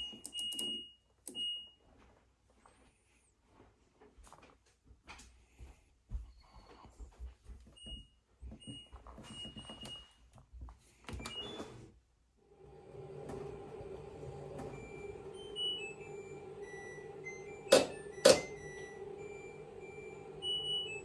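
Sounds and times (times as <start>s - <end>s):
control panel beeping: 0.0s - 1.5s, 14.4s - 21.0s
button clicks: 0.2s - 1.4s
washing machine humming: 11.1s - 21.0s.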